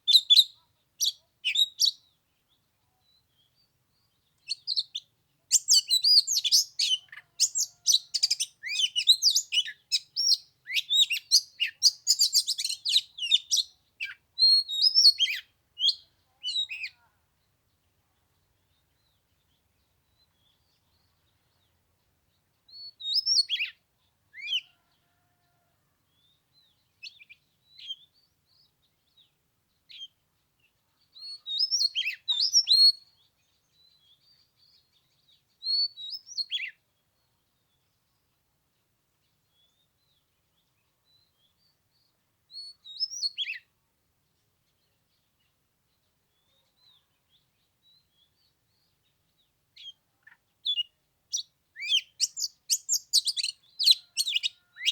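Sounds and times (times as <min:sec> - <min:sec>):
bird singing whistled phrases: 0:04.5 - 0:17.0, 0:22.7 - 0:23.8, 0:31.2 - 0:33.0, 0:42.6 - 0:43.6, 0:50.7 - 0:54.9.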